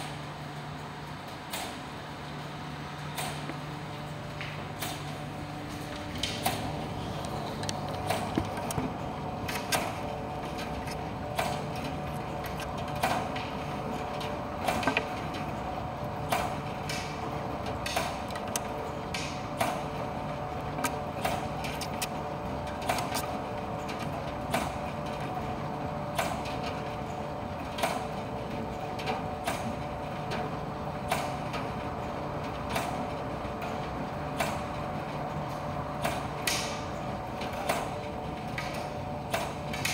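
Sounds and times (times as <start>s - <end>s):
tumble dryer humming: 0.0s - 26.1s.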